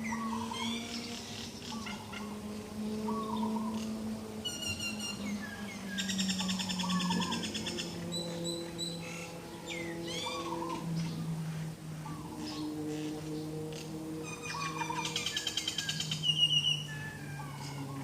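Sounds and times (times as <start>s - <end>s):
bird trill: 0.0s - 2.3s, 3.0s - 11.3s, 14.2s - 18.0s
birds chirping: 0.0s - 18.0s
low droning tones: 0.0s - 18.0s
whistled bird calls: 4.4s - 11.2s, 14.2s - 18.0s.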